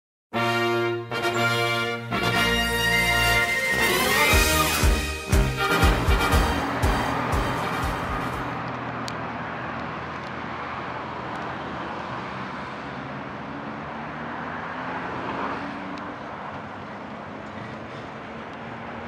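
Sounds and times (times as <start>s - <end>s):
music: 0.3s - 8.6s
train rumbling along track: 3.8s - 9.0s.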